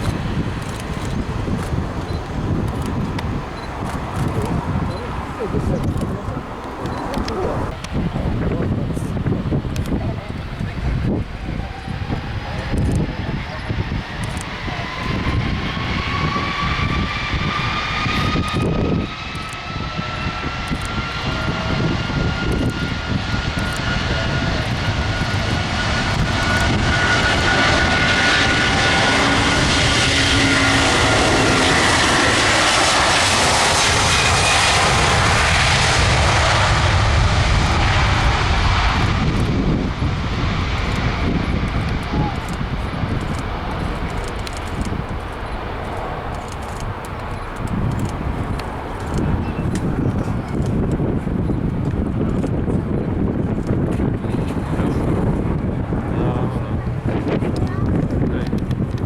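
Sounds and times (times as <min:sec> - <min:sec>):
jet engines spooling up: 0:00.0 - 0:51.1
jet engine rush: 0:00.0 - 0:59.0.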